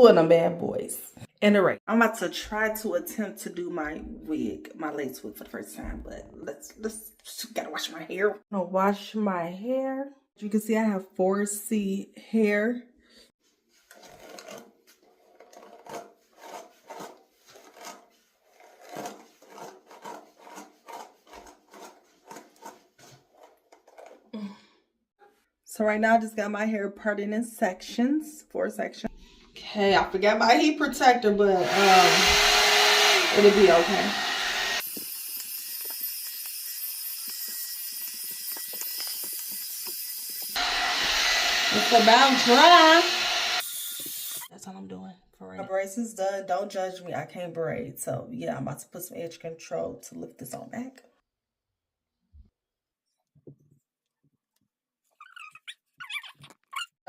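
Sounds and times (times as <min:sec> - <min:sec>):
hair dryer blowing: 0:31.5 - 0:36.6, 0:38.7 - 0:44.5
hair being rubbed: 0:31.6 - 0:35.1.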